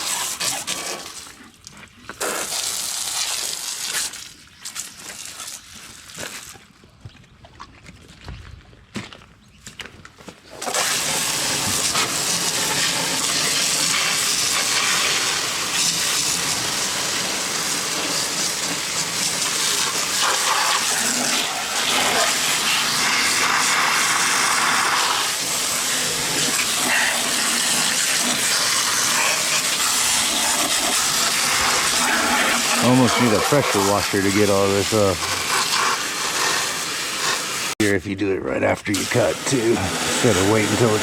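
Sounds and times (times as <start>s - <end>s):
hose spray hitting metal: 38.9s - 41.0s.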